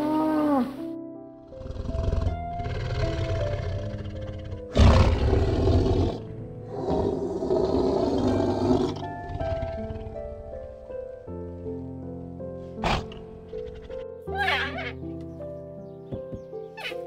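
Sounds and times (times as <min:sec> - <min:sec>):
soft background music: 0:00.0 - 0:17.0
tiger roaring: 0:01.5 - 0:10.8, 0:12.8 - 0:14.1.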